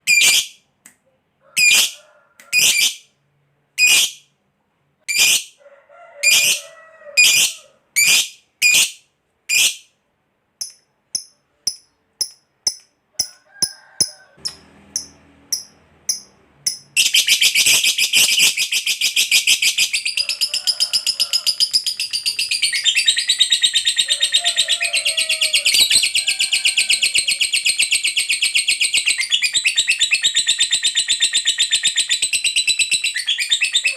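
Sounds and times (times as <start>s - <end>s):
bird chirping: 14.0s - 26.3s, 27.0s - 33.9s
bird shrieking: 24.0s - 26.2s.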